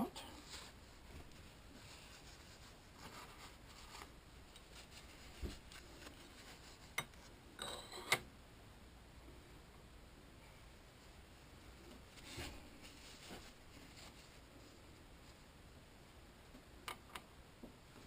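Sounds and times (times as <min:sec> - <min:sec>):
faint rubbing and brushing: 0:00.1 - 0:07.4, 0:10.6 - 0:15.6.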